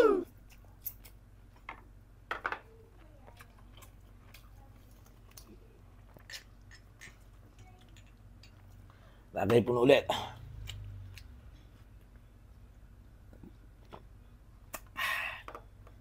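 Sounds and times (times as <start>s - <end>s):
person chewing: 3.2s - 7.3s.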